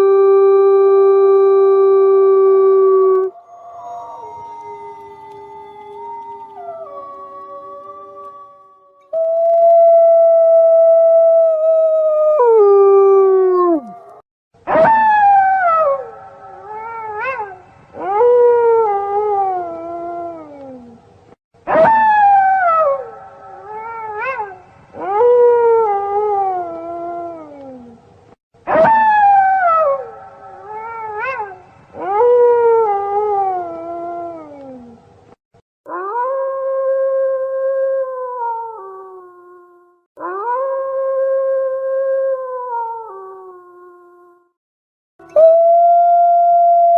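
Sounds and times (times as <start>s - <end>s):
wolves howling: 2.6s - 9.2s.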